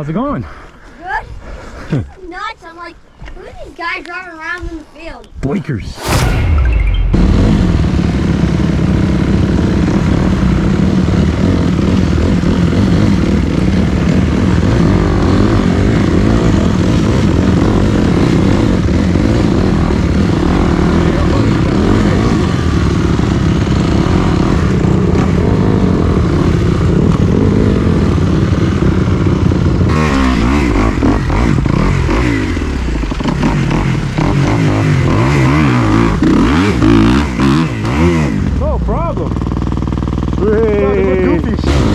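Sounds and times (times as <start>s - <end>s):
dirt bike engine revving: 7.2s - 41.9s.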